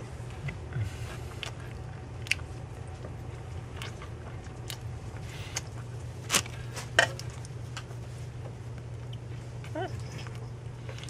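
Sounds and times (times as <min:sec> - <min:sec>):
steady low hum: 0:00.0 - 0:11.0
mouth chewing: 0:00.3 - 0:06.7.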